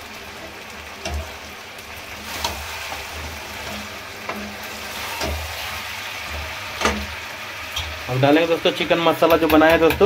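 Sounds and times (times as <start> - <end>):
chicken sizzling in hot oil: 0.0 - 10.0
metal spatula scraping pan: 2.2 - 7.1.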